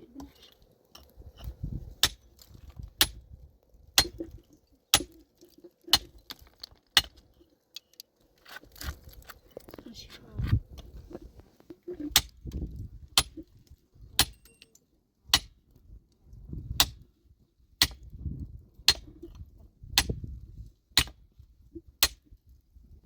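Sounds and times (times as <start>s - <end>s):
metal tool striking rock: 0.3s - 3.2s, 4.0s - 8.0s, 12.1s - 12.6s, 13.2s - 13.5s, 14.2s - 15.5s, 17.8s - 18.1s, 18.9s - 19.4s, 20.0s - 20.2s, 21.0s - 21.2s, 22.0s - 22.2s.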